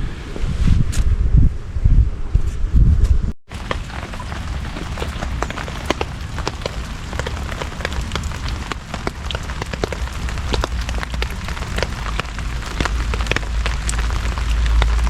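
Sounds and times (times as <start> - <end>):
heavy rain on a tarp: 3.5 - 15.0.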